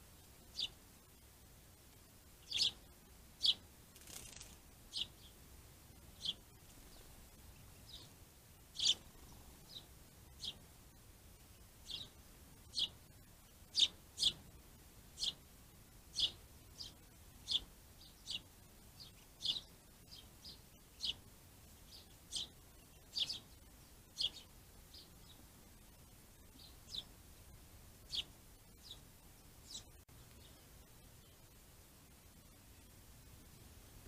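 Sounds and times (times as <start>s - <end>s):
small bird call notes: 0.5s - 0.8s, 2.4s - 5.4s, 6.2s - 10.6s, 11.8s - 13.0s, 13.7s - 14.5s, 15.2s - 15.4s, 16.1s - 25.4s, 26.5s - 27.1s, 28.0s - 31.5s.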